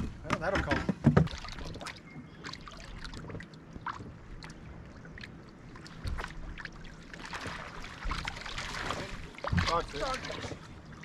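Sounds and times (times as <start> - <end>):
light clicks and knocks: 0.0 - 1.4
water lapping against boat hull: 0.0 - 11.0.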